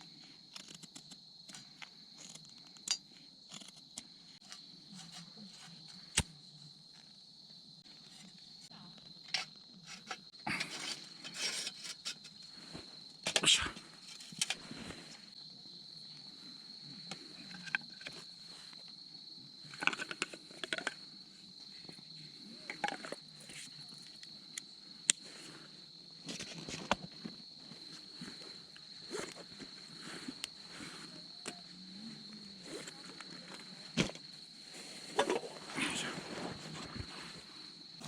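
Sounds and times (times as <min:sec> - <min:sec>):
crickets chirping: 0:00.0 - 0:38.0
clicks of handling things: 0:19.7 - 0:21.0.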